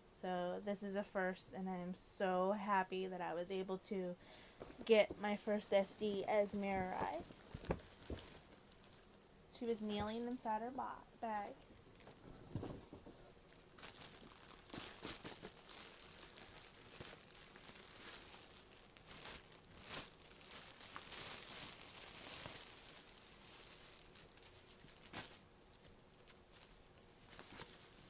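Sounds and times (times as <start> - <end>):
packaging bag crinkling: 4.3 - 9.1, 11.2 - 28.0.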